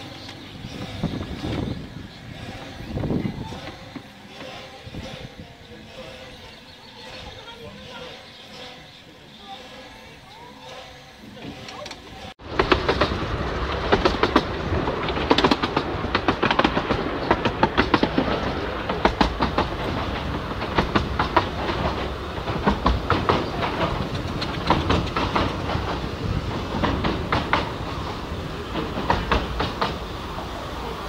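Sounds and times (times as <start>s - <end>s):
train running gear rumble: 0.0s - 31.0s
wheel clicks over rail joints: 11.4s - 30.1s.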